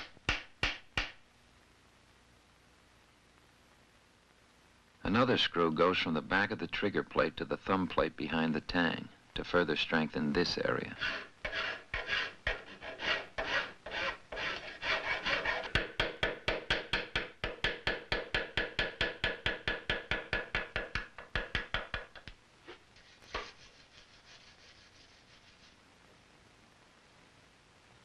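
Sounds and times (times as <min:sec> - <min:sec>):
hand file strokes: 0:10.9 - 0:15.9, 0:23.0 - 0:25.8.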